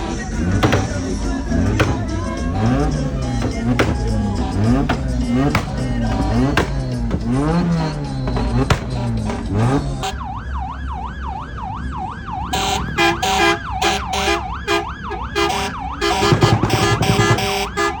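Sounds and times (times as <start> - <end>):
pounding rhythmic beat: 0.0 - 10.3, 15.7 - 18.0
siren wailing: 0.0 - 18.0.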